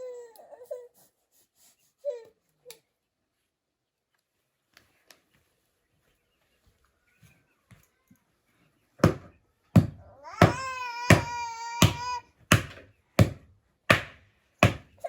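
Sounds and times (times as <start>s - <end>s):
young child crying: 10.1s - 12.3s.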